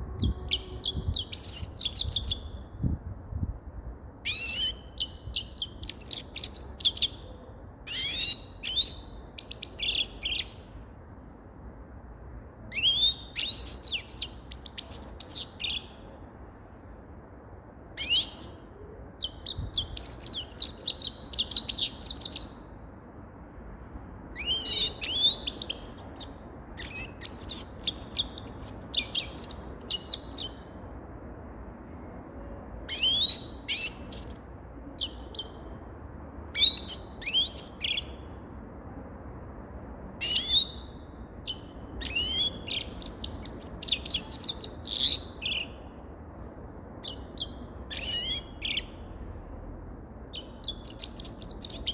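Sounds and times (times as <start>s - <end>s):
goldfinch twittering song: 47.0s - 48.9s.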